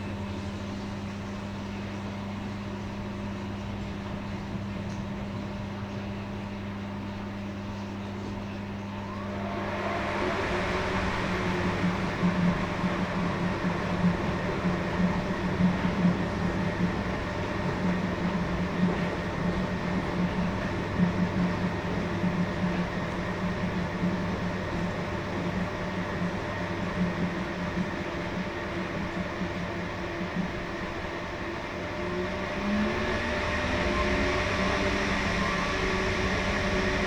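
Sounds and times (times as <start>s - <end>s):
washing machine motor hum: 0.0s - 37.0s
drum rumbling: 8.9s - 17.5s.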